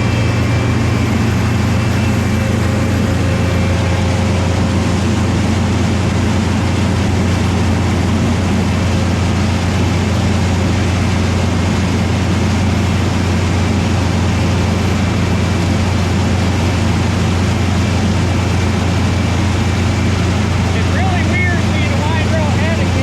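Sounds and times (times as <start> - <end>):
engine running low drone: 0.0 - 23.0.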